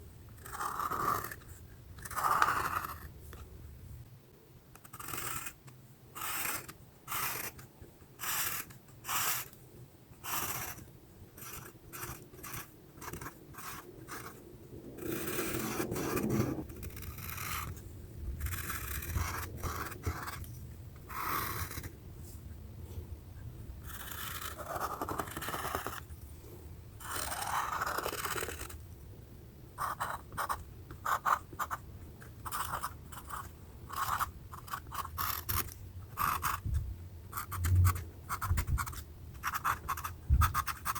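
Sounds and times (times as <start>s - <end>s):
drawing tool scratching paper: 0.4s - 3.2s, 4.7s - 9.6s, 10.2s - 14.4s, 15.0s - 17.8s, 18.4s - 22.0s, 23.8s - 26.1s, 27.0s - 28.8s, 29.8s - 40.9s.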